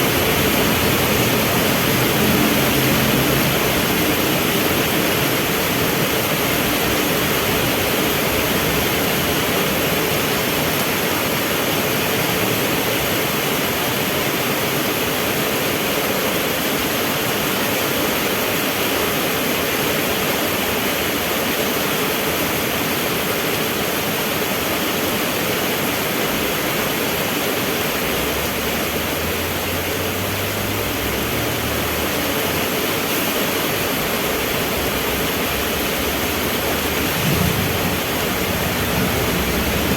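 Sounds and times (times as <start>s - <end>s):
vehicle engine hum: 0.0s - 9.6s, 33.8s - 39.9s
heavy rain falling: 0.0s - 39.9s.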